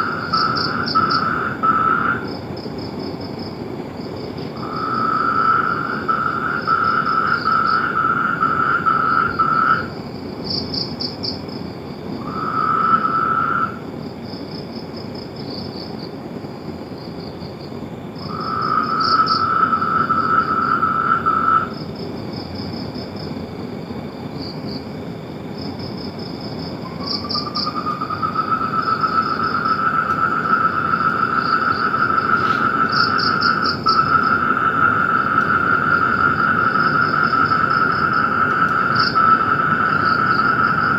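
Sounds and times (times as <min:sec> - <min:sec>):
frog pulsed trill: 0:00.0 - 0:02.3, 0:04.6 - 0:09.9, 0:18.3 - 0:21.8, 0:27.0 - 0:40.9
frog chorus: 0:00.0 - 0:16.1, 0:17.2 - 0:23.2, 0:24.3 - 0:40.9.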